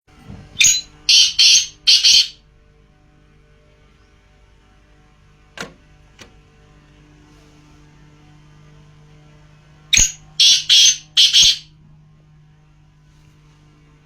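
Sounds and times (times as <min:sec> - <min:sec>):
bird calling high notes: 0:00.6 - 0:02.4, 0:10.0 - 0:11.7.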